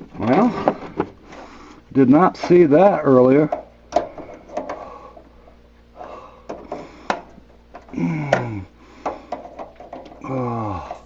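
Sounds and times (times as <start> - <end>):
hand tools clicking and scraping: 3.4 - 5.3, 6.4 - 11.0
person grunting: 7.9 - 8.8, 10.2 - 11.0.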